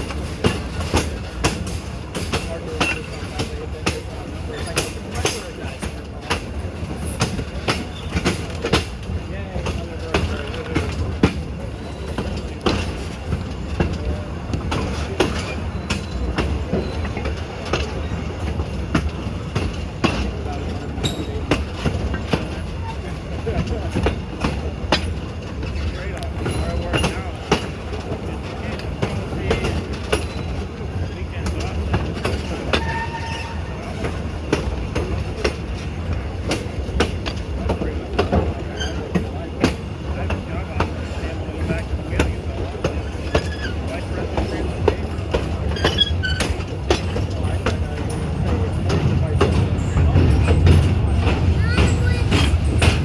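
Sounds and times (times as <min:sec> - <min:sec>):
train wheels rumbling on track: 0:00.0 - 0:53.0
wheels clacking over rail joints: 0:00.0 - 0:53.0
faint wheel squeal: 0:32.7 - 0:33.8, 0:38.6 - 0:39.1, 0:43.0 - 0:44.0, 0:45.7 - 0:46.6.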